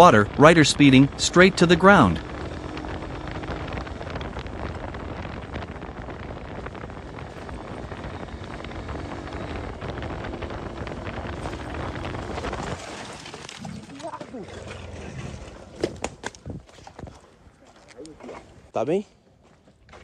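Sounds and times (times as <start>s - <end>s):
motorcycle engine running: 0.0s - 13.0s
wind buffeting microphone: 0.0s - 18.7s.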